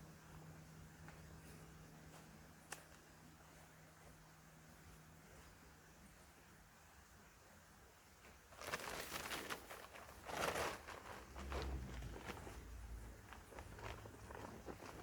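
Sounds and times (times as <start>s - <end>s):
rustling: 8.2s - 15.0s.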